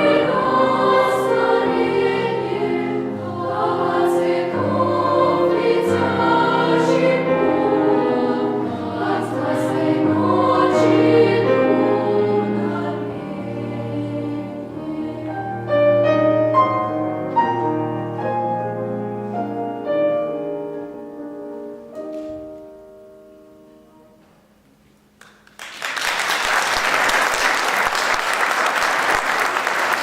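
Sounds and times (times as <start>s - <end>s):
piano chords: 0.0s - 25.2s
audience applause: 25.2s - 30.0s.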